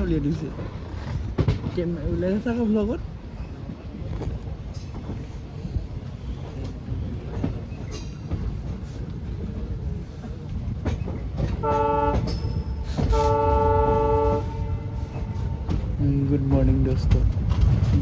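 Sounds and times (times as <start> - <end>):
train rumbling and knocking: 0.0 - 18.0
train horn blasts: 11.6 - 15.9.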